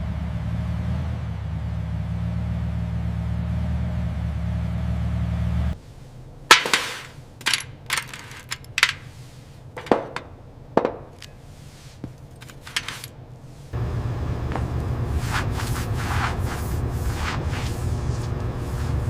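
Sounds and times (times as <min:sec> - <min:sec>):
sharp knocks: 0:09.8 - 0:11.3.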